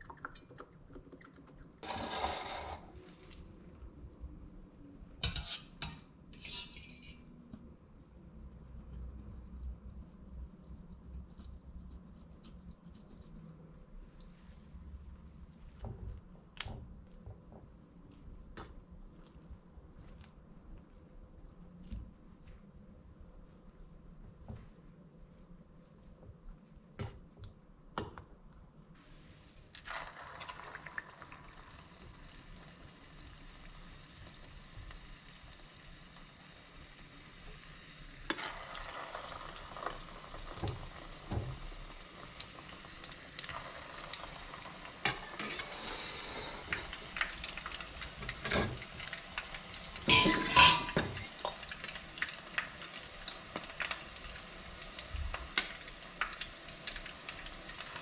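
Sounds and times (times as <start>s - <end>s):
fork scraping a metal bowl: 1.8s - 2.9s, 5.2s - 7.2s, 45.1s - 46.3s, 50.1s - 51.3s
cauliflower sizzling in hot oil: 29.0s - 58.0s.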